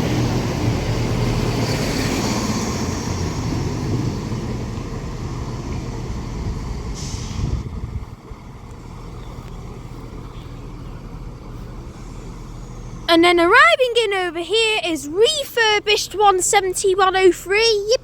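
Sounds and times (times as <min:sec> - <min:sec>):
train rumbling: 0:00.0 - 0:18.0
air hiss: 0:07.0 - 0:07.6.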